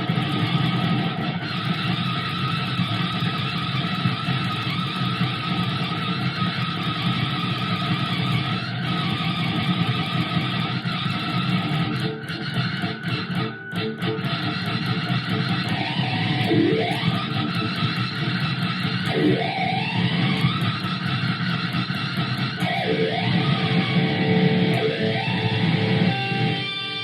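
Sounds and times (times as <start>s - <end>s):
electric guitar with wah pedal: 0.0s - 27.0s.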